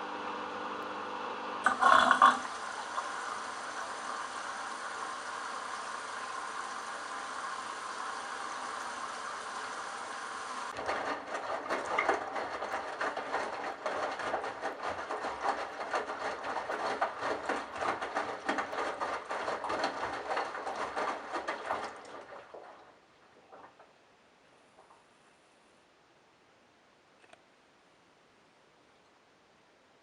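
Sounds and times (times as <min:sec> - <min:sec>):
washing machine motor hum: 0:00.0 - 0:23.9
water and wet laundry rattling: 0:01.6 - 0:24.1.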